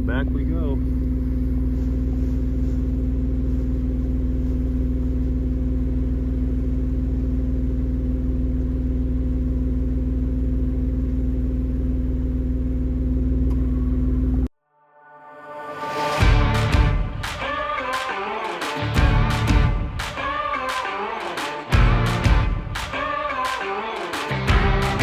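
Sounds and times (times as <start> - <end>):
car engine running steadily: 0.0 - 14.5, 18.8 - 20.0, 21.7 - 22.9, 24.3 - 25.0.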